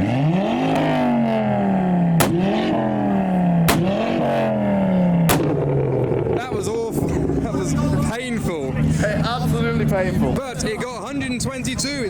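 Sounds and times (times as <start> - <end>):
car engine revving hard: 0.0 - 6.5
sharp exhaust bangs: 0.0 - 7.8.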